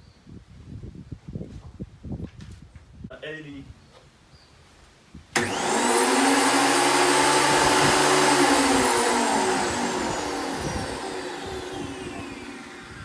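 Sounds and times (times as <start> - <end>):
thickness planer motor whining: 5.4 - 13.0.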